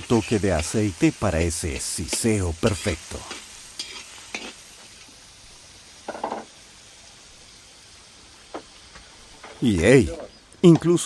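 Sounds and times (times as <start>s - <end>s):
onions sizzling in oil: 0.0s - 11.0s
utensil scraping a pan: 1.8s - 4.9s.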